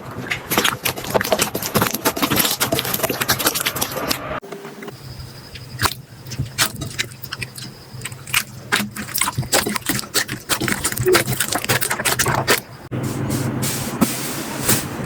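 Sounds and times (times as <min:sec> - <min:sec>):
slime squishing and popping: 0:05.7 - 0:12.6.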